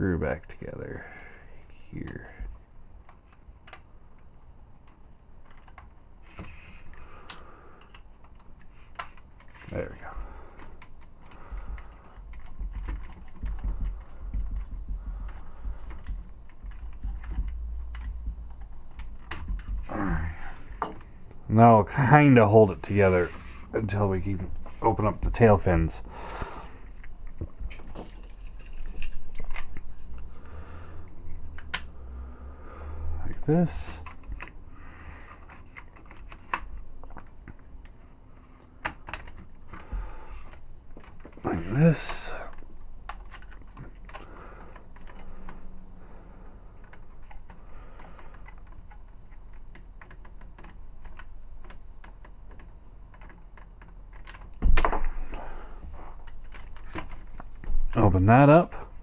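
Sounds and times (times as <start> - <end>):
plastic figure parts clicking: 2.0 - 21.4, 31.0 - 32.2, 32.9 - 38.0, 38.8 - 45.8, 46.6 - 58.0.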